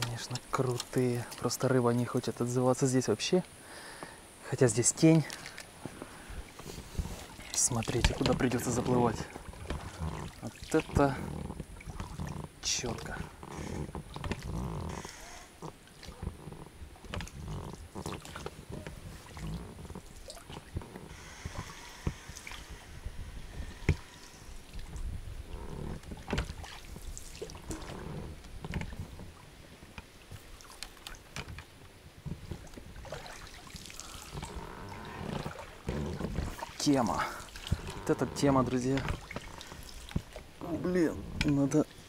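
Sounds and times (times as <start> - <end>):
water dripping: 4.9 - 22.8, 32.4 - 41.8
paddle splashes: 5.2 - 42.0
knocks and scrapes against boat: 5.3 - 33.2, 34.2 - 41.9.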